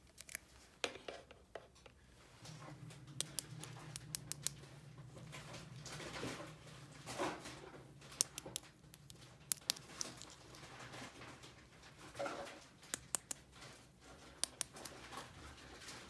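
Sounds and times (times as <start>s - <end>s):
low steady hum: 1.8s - 12.0s
plastic toy pieces clicking: 8.2s - 10.4s, 12.9s - 13.4s, 14.4s - 15.0s.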